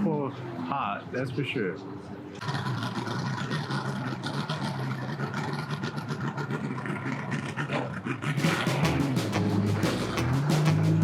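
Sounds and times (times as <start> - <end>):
boat motor humming: 8.4 - 11.0.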